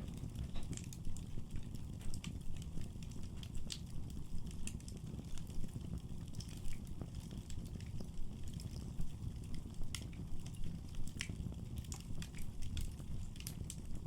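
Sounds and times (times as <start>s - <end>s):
low rumble of flames: 0.0s - 14.0s
wood fire crackling: 0.0s - 14.0s.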